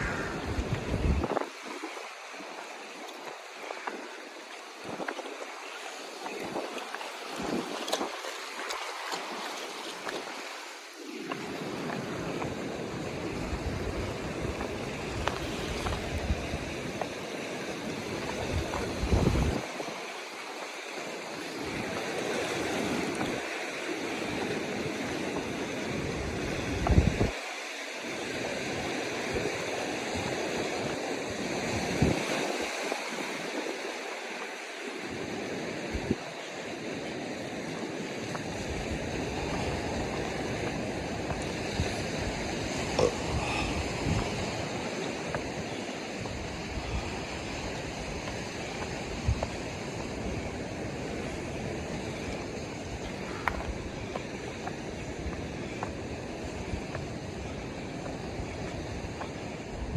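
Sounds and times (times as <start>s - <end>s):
wind buffeting microphone: 0.0s - 27.4s, 28.2s - 59.9s
ocean waves washing ashore: 0.0s - 59.9s.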